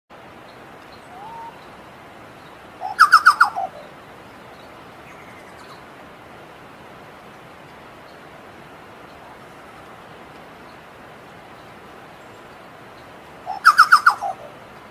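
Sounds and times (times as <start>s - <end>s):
bird singing: 0.4s - 5.9s, 11.6s - 14.6s.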